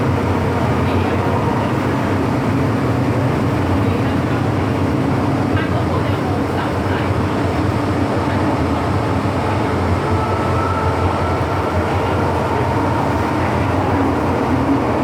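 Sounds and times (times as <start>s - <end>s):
metro train running on track: 0.0s - 15.0s.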